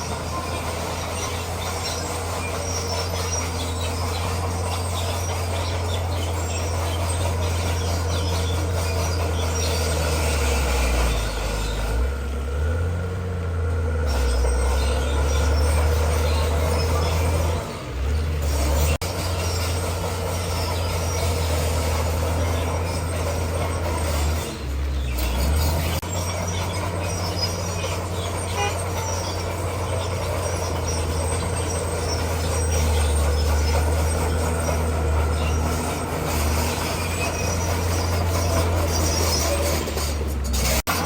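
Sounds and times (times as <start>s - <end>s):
steel tracks clanking over stone: 0.0s - 12.9s, 13.7s - 41.0s
bulldozer diesel engine droning: 0.0s - 41.0s.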